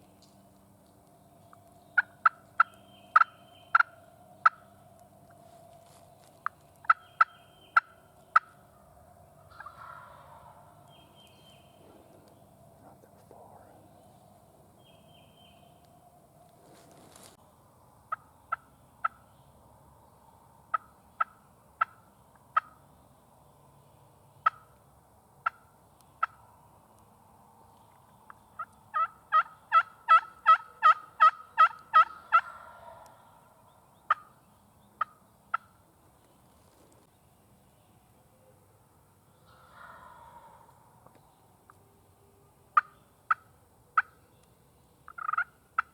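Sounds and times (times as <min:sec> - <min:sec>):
turkey clucking and yelping: 0:01.4 - 0:12.6, 0:20.7 - 0:22.8, 0:24.4 - 0:24.8, 0:25.4 - 0:26.4, 0:28.0 - 0:34.4, 0:39.3 - 0:41.8, 0:42.6 - 0:45.9.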